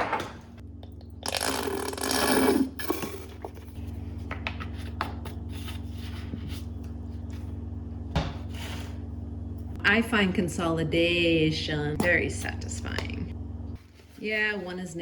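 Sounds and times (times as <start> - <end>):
squeeze bottle sputtering: 1.2 - 3.4.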